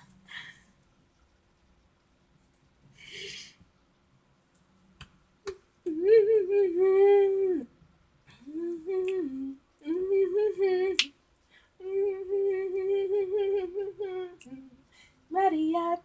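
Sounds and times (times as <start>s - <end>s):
woman humming a melody: 5.9s - 7.7s, 8.4s - 11.0s, 11.8s - 16.0s.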